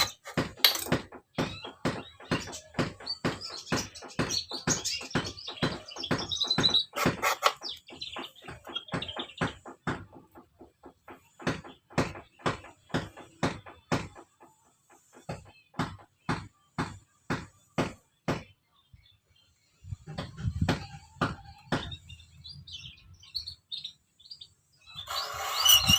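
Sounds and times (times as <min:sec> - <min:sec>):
sharp knocks on birdcage spokes: 0:00.0 - 0:14.5
birds chirping: 0:00.0 - 0:25.9.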